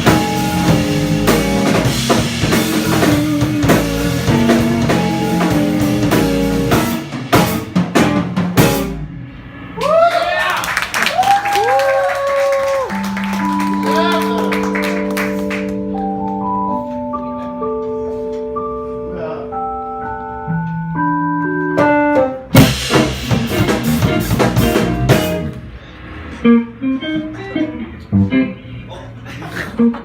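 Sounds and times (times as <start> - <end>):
jazz combo playing: 0.0 - 9.7, 12.7 - 28.9
drums and cymbals burst: 0.0 - 10.0, 22.6 - 26.5.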